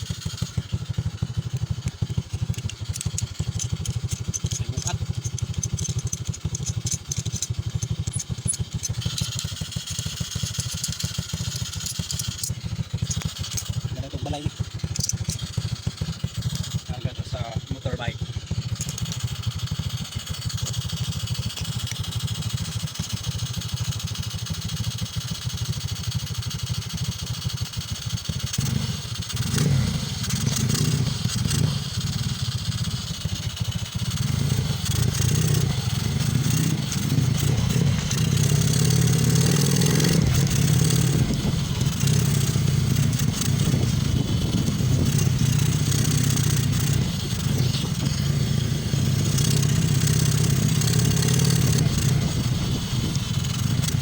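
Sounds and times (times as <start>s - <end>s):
rattling: 0.0s - 17.8s, 18.5s - 22.8s, 29.3s - 54.0s
motorcycle engine running: 0.0s - 54.0s
wind noise: 43.2s - 45.6s.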